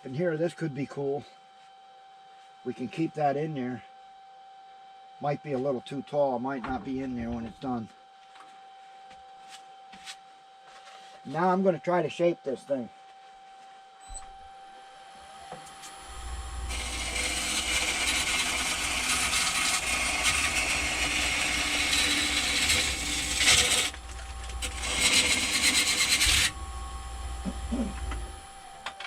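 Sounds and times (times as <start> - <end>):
lathe motor hum: 14.4 - 29.0
turning tool cutting wood: 16.0 - 28.6.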